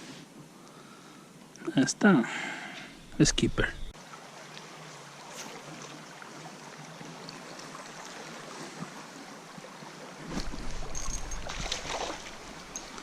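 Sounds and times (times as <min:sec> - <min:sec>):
river water: 0:00.6 - 0:13.0
breeze: 0:10.2 - 0:13.0
wind rumbling on microphone: 0:10.2 - 0:13.0.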